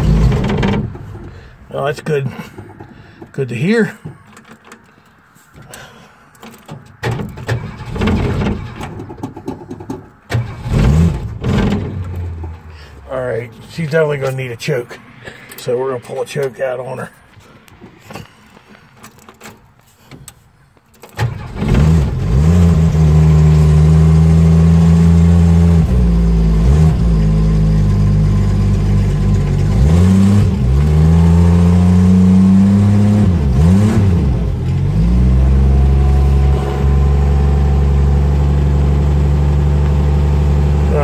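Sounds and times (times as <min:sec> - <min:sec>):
car engine starting and revving: 0:00.0 - 0:01.6, 0:07.2 - 0:13.4, 0:21.2 - 0:41.0.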